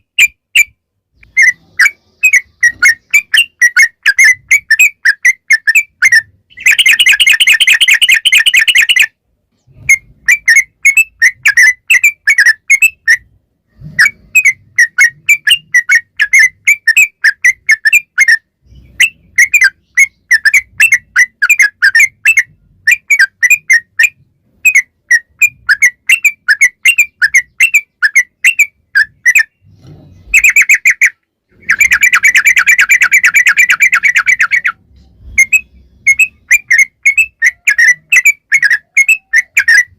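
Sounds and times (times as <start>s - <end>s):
bird chirping song: 0.0s - 39.9s
fast rolling bird trill: 0.0s - 39.9s.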